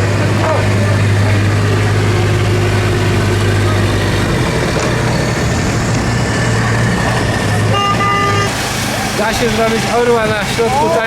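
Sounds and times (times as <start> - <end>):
heavy truck engine running: 0.0 - 11.0.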